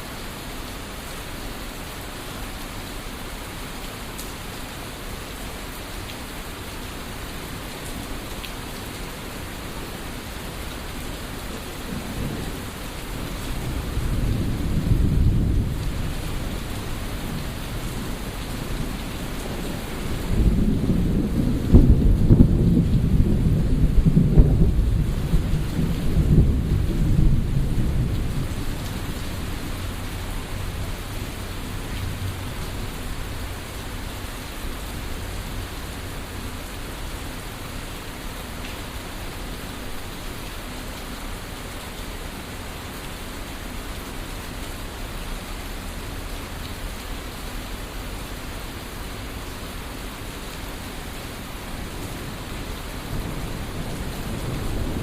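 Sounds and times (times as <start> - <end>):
steady rain: 0.0 - 55.0
thunder rumbling: 11.8 - 33.6, 52.1 - 55.0.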